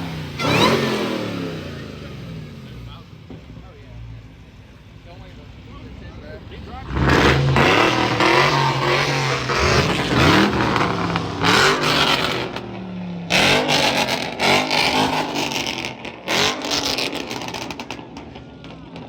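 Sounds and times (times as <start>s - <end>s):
car engine revving in blips: 0.0s - 3.0s, 6.8s - 19.0s.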